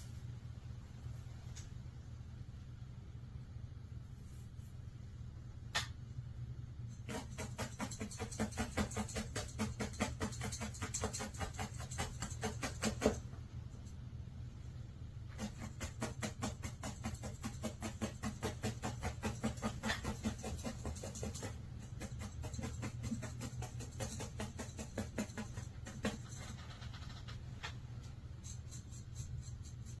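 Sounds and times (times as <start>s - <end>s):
steady low hum: 0.0s - 30.0s
felting needle poking wool: 7.0s - 13.3s, 15.3s - 30.0s.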